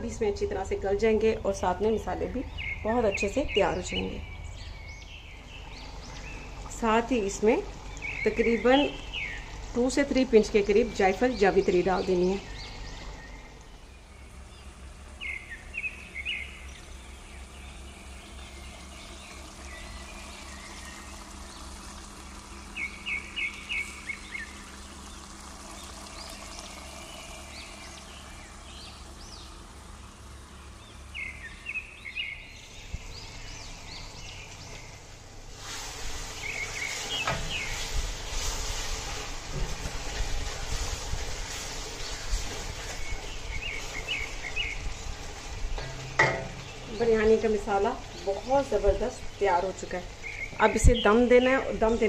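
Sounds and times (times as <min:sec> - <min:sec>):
birds chirping: 0:00.0 - 0:35.5, 0:36.2 - 0:38.4, 0:41.7 - 0:52.0
steady low hum: 0:00.0 - 0:52.0
steady hiss: 0:32.6 - 0:49.5.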